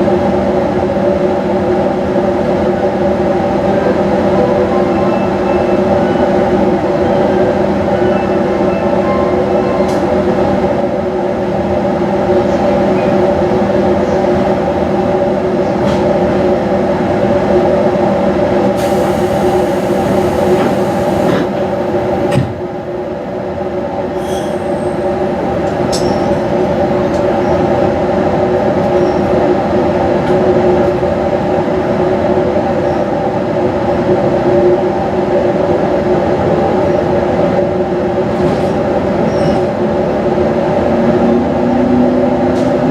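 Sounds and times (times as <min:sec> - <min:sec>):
electric train hum: 0:00.0 - 0:42.9
wheels rumbling on rails: 0:24.0 - 0:42.9.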